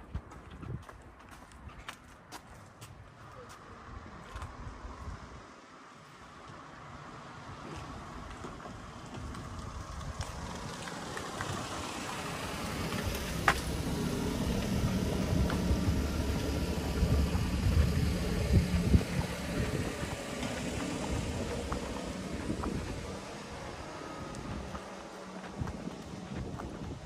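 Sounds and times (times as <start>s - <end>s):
car engine running: 9.1s - 27.0s.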